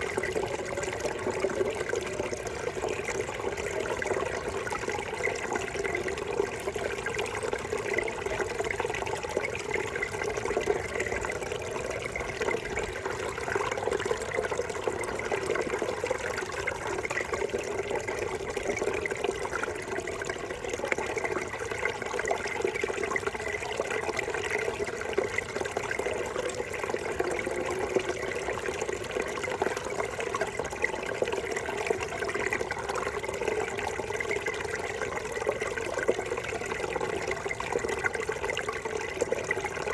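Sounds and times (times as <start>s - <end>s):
brook water gurgling: 0.0s - 39.9s.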